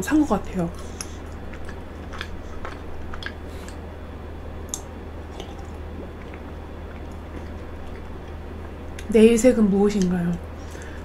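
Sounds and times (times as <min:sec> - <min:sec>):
chewing with wet mouth clicks: 0:00.7 - 0:03.8, 0:04.6 - 0:09.1.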